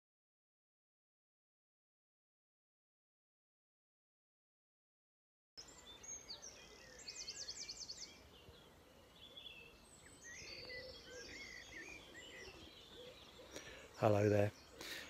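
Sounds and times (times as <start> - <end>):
faint birdsong: 5.6 - 15.0
outdoor background noise: 5.6 - 15.0.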